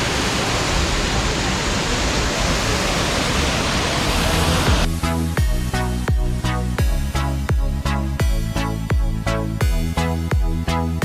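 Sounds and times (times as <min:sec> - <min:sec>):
loud rushing noise: 0:00.0 - 0:05.4
low rumble: 0:00.0 - 0:10.7
electronic dance music: 0:04.2 - 0:11.0.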